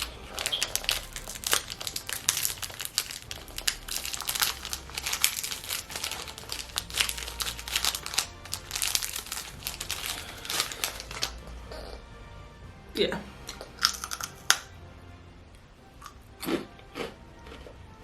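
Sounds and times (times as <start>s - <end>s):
plastic wrapper crinkling: 0.0s - 11.4s, 13.5s - 14.7s.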